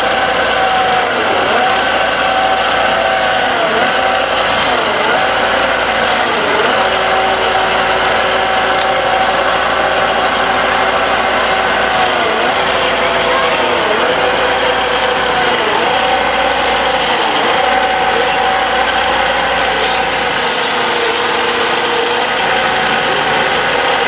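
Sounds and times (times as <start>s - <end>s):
wood lathe motor whine: 0.0s - 24.0s.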